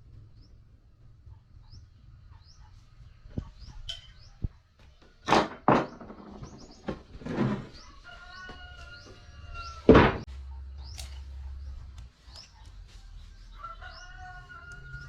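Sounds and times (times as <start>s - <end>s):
small bird chirping: 0.0s - 5.0s, 10.5s - 15.0s
construction knocks and clunks: 3.3s - 10.3s.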